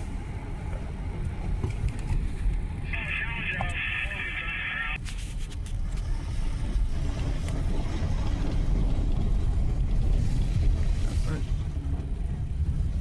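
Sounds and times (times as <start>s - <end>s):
freight train rumbling past: 6.1s - 13.0s.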